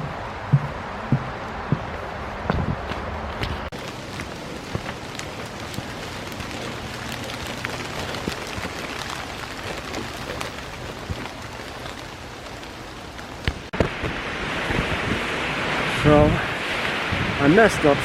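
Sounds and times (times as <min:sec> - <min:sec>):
thumps: 0:00.0 - 0:03.7
raindrops tapping: 0:00.0 - 0:15.2
rain falling: 0:00.0 - 0:18.0.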